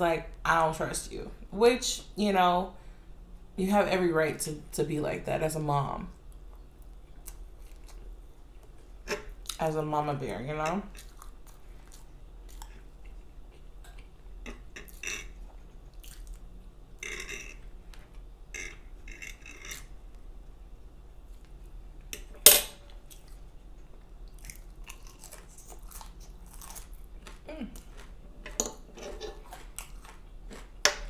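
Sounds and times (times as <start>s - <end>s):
close chewing of food: 10.9s - 19.9s, 24.2s - 31.0s.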